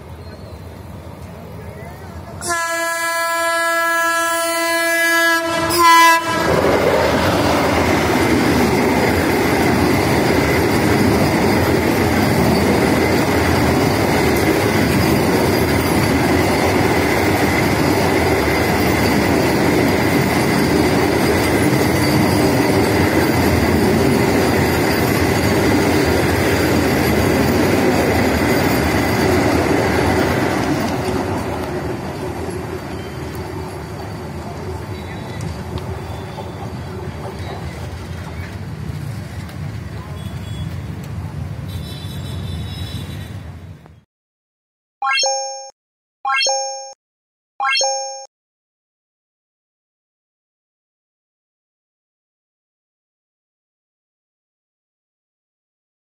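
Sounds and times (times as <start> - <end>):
train passing at speed: 0.0 - 43.8
train horn blasts: 2.4 - 6.6.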